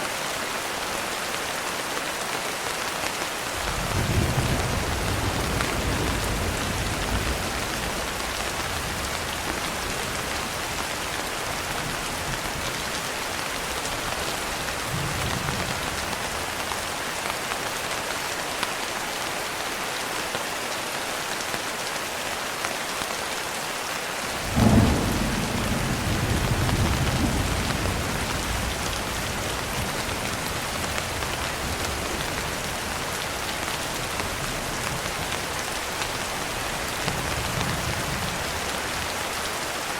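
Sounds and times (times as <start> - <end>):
rain pattering on a window: 0.2 - 39.9
loud thunder clap: 3.6 - 10.2, 24.4 - 32.5
thunder rumbling: 3.6 - 16.8, 24.4 - 39.1.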